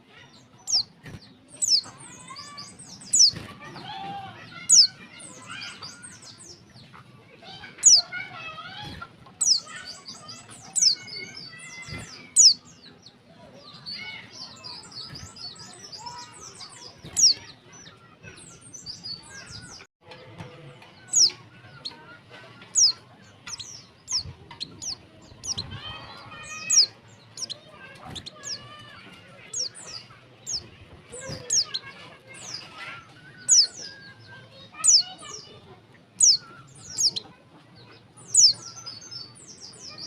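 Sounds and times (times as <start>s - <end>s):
faint warbling bird chatter: 0.0s - 20.2s, 20.8s - 40.0s
bird high sliding chirps: 1.6s - 3.4s, 9.4s - 12.7s, 22.7s - 28.7s.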